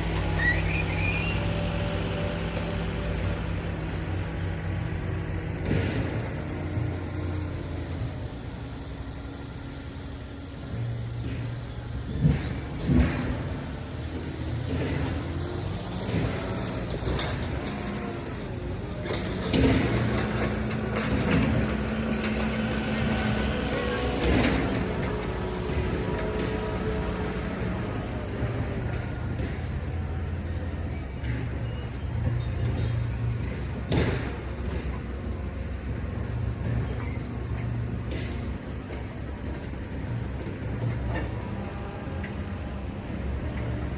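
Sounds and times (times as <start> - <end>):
machinery rumbling: 0.0 - 43.9
truck engine running: 0.0 - 43.9
metal knocks and clatters: 18.9 - 42.6.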